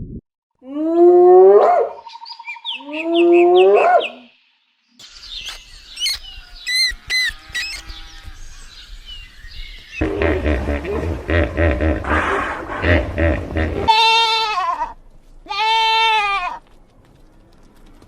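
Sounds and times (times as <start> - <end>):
small birds chirping: 2.0 - 10.2
birds chirping in sharp notes: 2.0 - 10.7
drawn-out rising animal calls: 10.0 - 14.3.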